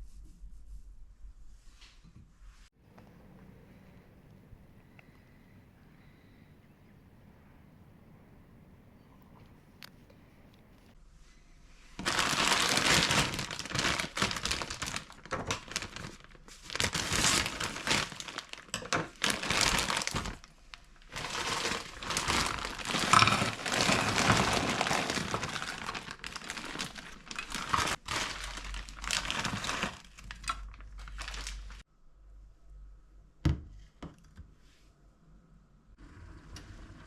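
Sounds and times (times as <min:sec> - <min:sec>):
plastic packaging crinkling: 0:12.0 - 0:31.8.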